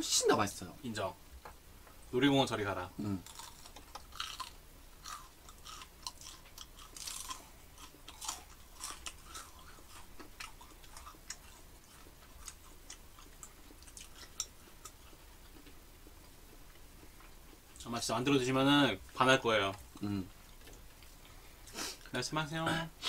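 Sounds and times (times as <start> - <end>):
crunchy chewing: 3.0 - 18.0.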